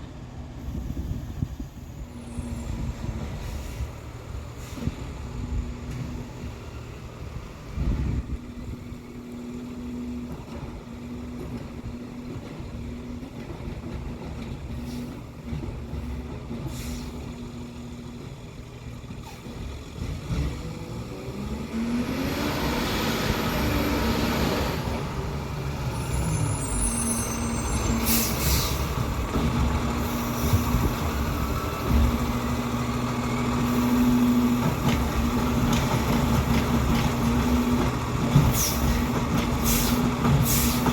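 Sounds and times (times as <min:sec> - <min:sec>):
engine revving with loud rush: 0:20.3 - 0:26.4
garbage truck engine running: 0:22.7 - 0:40.9
air hiss: 0:38.6 - 0:40.9.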